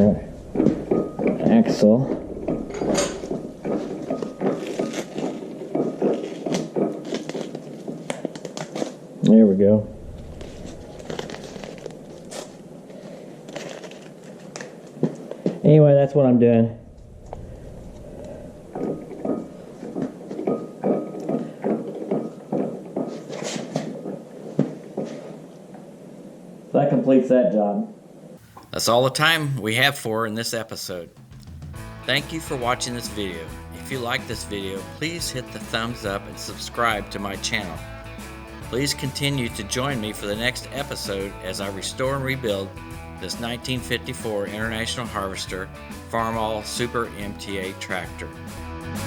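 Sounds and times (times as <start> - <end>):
scraping and rubbing: 0.0 - 9.0, 9.9 - 15.2
tape backing peeled: 4.4 - 9.0, 11.0 - 12.6, 13.4 - 15.2.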